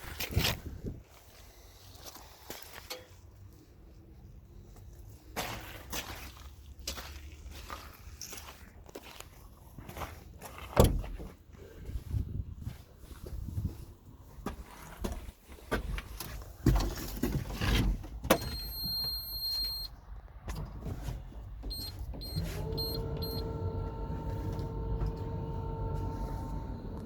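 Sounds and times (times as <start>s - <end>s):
clicks and knocks in cab: 10.8s - 11.3s
diesel engine starting and idling: 18.2s - 27.0s
electronic warning beeps: 18.3s - 19.9s, 21.7s - 23.6s.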